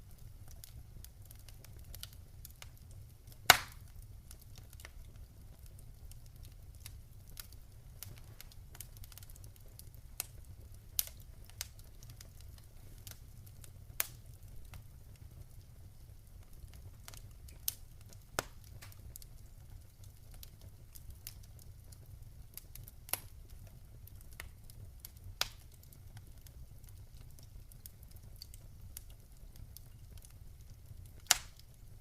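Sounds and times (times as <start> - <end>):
wood fire crackling: 0.0 - 32.0
loud pop of fire: 3.4 - 3.9, 31.2 - 31.6.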